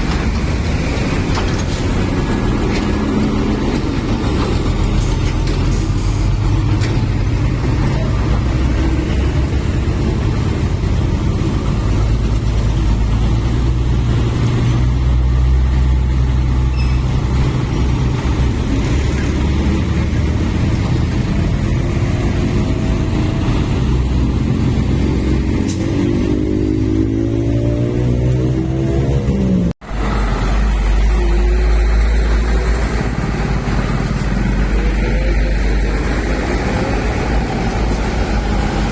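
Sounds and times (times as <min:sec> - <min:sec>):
truck engines droning: 0:00.0 - 0:38.9
engine revving up: 0:17.4 - 0:38.9.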